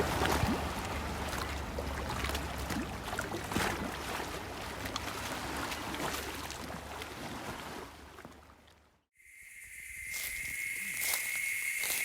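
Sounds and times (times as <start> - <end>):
lake water lapping: 0.0 - 8.9
high insect buzz: 9.2 - 12.0.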